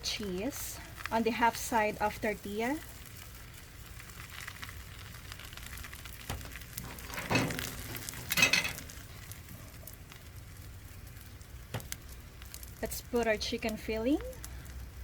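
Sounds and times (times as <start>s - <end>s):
tortilla sizzling in a pan: 0.0s - 15.0s
handling noises: 6.3s - 8.9s.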